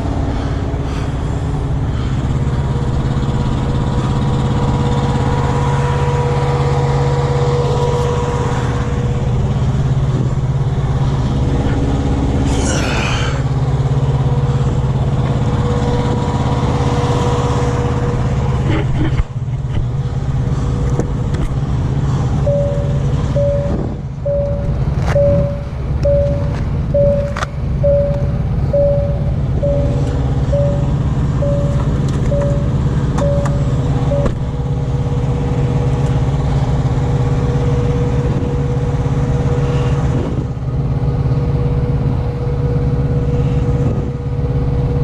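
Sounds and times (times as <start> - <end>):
diesel truck engine running: 0.0 - 45.0
pulsed beeping tone: 22.4 - 34.3.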